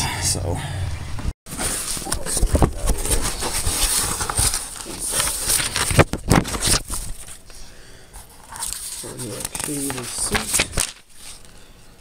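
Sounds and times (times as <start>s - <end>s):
package rustling and crinkling: 1.5s - 7.6s, 8.2s - 11.6s.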